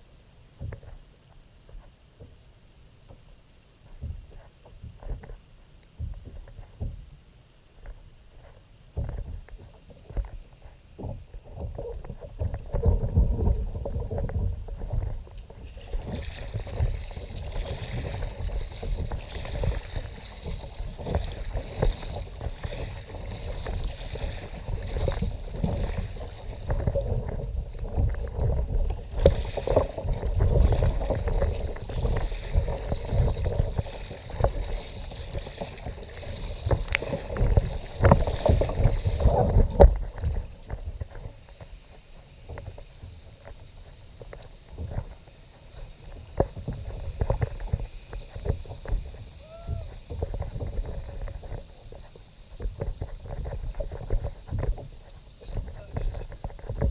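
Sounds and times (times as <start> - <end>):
water splashing against kayak hull: 0.0 - 56.9
wind buffeting microphone: 46.0 - 56.9.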